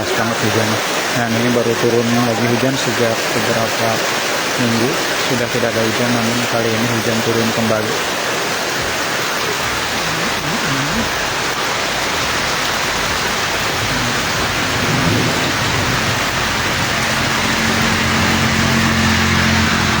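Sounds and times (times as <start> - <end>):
heavy rain: 0.0 - 20.0
vehicle engine hum: 8.0 - 20.0.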